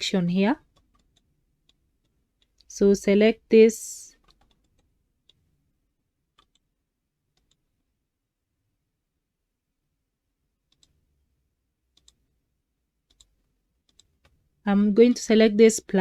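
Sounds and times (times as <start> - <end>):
computer mouse clicks: 0.6 - 2.7, 4.2 - 5.5, 6.3 - 6.7, 7.3 - 7.6, 10.7 - 11.0, 11.9 - 12.2, 13.0 - 14.4.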